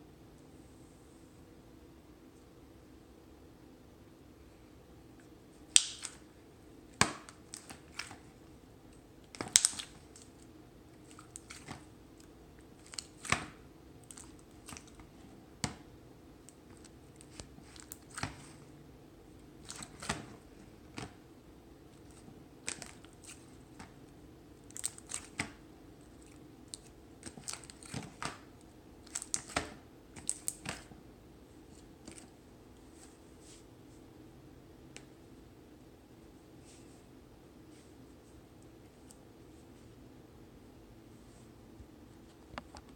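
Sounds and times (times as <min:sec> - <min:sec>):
slime popping and crackling: 0:05.7 - 0:06.2, 0:09.3 - 0:10.4, 0:12.7 - 0:15.8.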